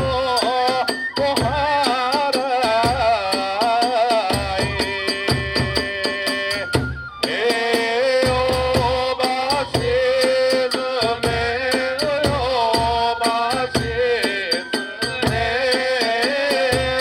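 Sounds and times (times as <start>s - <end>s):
bamboo flute melody: 0.0s - 2.3s, 4.6s - 11.3s
quick drum beats: 0.0s - 17.0s.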